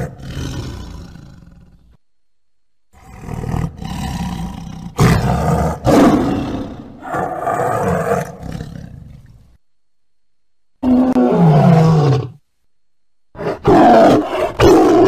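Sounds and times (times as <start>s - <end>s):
tiger roaring: 0.0s - 2.0s, 2.9s - 9.5s, 10.8s - 12.4s, 13.3s - 15.0s.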